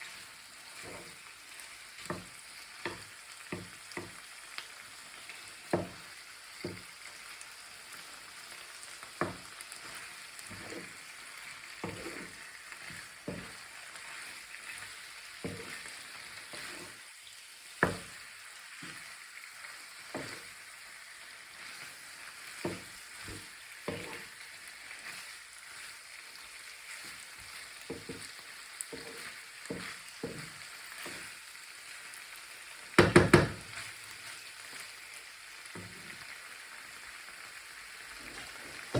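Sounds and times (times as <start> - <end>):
vegetables sizzling in a pan: 0.0 - 38.9
utensil knocking against pan: 5.8 - 6.0, 33.0 - 33.6.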